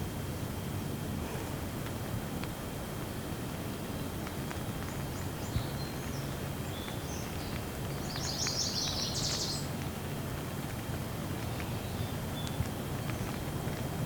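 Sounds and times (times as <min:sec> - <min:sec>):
gentle rain: 0:00.0 - 0:14.0
small bird chirping: 0:05.1 - 0:09.7.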